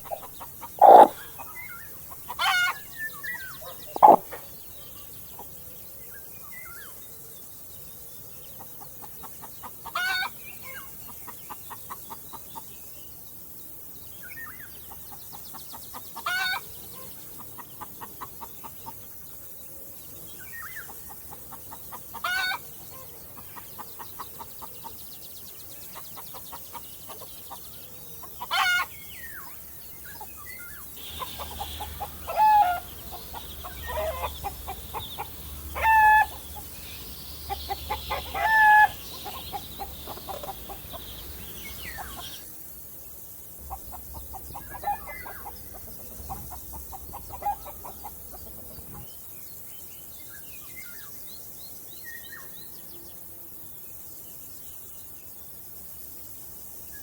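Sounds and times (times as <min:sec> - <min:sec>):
chicken squawking: 0:00.0 - 0:01.3, 0:02.3 - 0:02.8, 0:03.6 - 0:04.4, 0:31.1 - 0:36.7, 0:37.5 - 0:41.0
chickens clucking: 0:00.0 - 0:02.9, 0:03.6 - 0:04.5, 0:20.9 - 0:25.0, 0:25.9 - 0:28.9, 0:31.0 - 0:42.4, 0:43.6 - 0:49.1.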